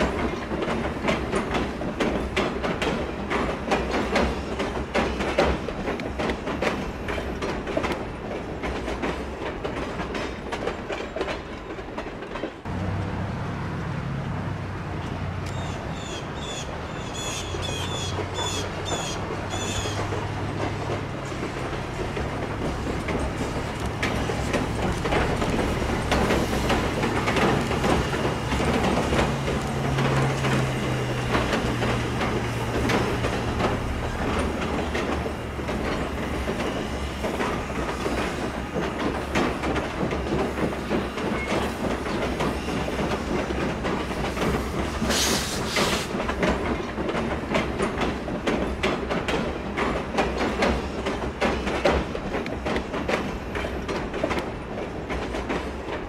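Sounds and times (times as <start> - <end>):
train wheels clicking over rail joints: 0.0 - 13.1, 14.9 - 56.0
bird chirping: 15.5 - 20.0.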